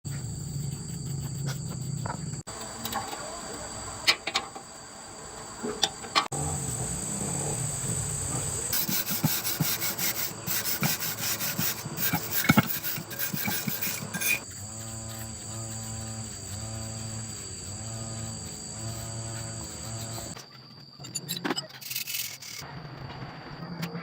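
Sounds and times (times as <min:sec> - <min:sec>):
crickets chirring: 0:00.1 - 0:22.6
hand tool rasping: 0:08.7 - 0:20.4.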